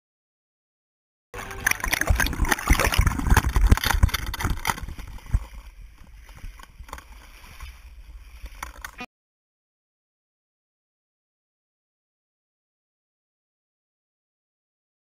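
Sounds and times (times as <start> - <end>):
water splashing: 1.4 - 9.1.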